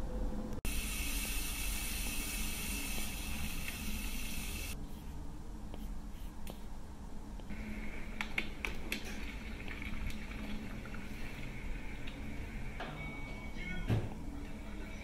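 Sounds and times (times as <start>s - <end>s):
low hum: 0.0s - 8.2s
steady hiss: 0.6s - 4.8s.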